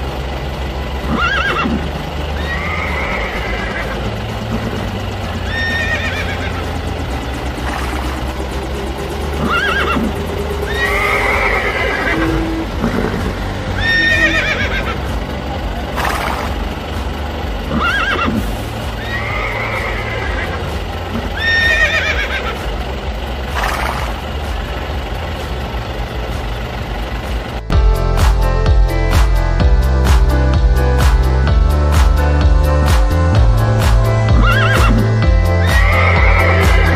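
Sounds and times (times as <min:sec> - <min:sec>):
background music: 0:00.0 - 0:36.9
horse whinnies: 0:01.1 - 0:01.8, 0:02.4 - 0:04.0, 0:05.5 - 0:06.4, 0:09.4 - 0:10.1, 0:10.7 - 0:15.0, 0:17.7 - 0:18.4, 0:19.0 - 0:20.6, 0:21.4 - 0:22.6, 0:34.4 - 0:35.0, 0:35.6 - 0:36.9.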